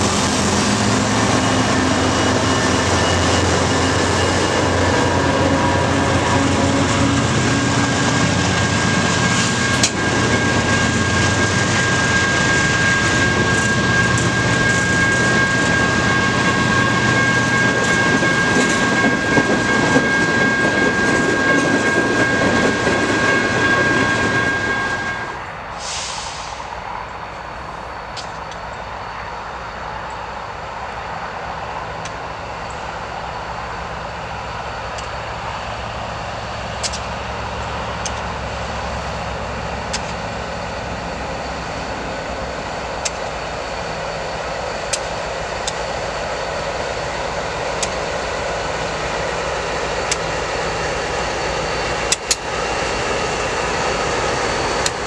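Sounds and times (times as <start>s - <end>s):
high wheel squeal: 0.0s - 26.6s
freight train rolling past: 0.0s - 55.0s.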